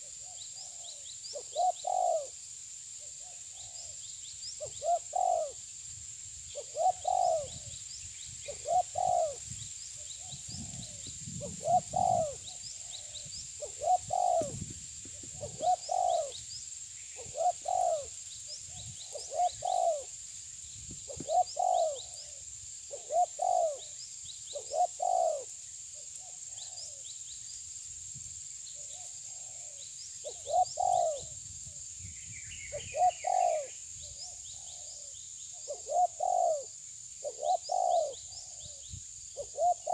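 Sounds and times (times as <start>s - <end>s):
bird cooing: 0.0s - 2.4s, 4.6s - 5.6s, 6.5s - 7.8s, 8.5s - 16.4s, 17.2s - 20.1s, 21.1s - 25.6s, 28.8s - 31.4s, 32.6s - 39.9s.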